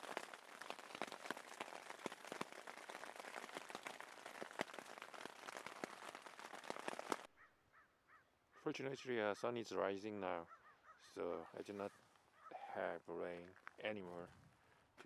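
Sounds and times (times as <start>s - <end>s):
rain pattering on a tent: 0.0s - 7.3s.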